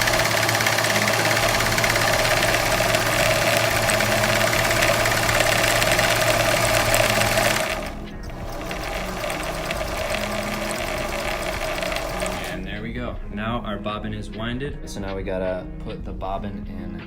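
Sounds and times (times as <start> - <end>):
sewing machine winding bobbin: 0.0 - 12.7.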